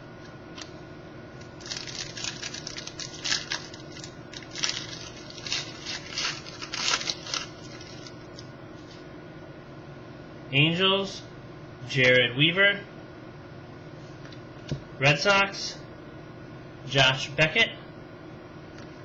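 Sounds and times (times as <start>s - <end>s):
cards and wrapper crinkling: 1.4s - 8.5s.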